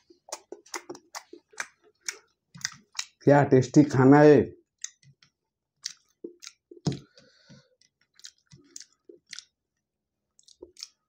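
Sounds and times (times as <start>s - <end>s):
person chewing food: 0.0s - 3.2s, 4.7s - 11.0s.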